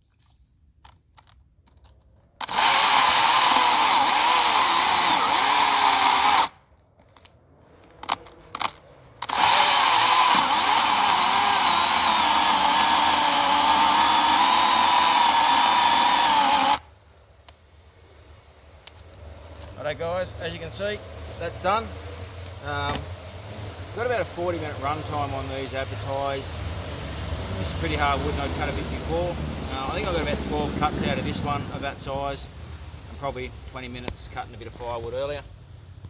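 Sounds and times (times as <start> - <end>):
chainsaw motor blips: 2.4 - 6.6, 9.2 - 16.8
electric chainsaw cutting wood: 2.4 - 6.6, 9.2 - 16.9.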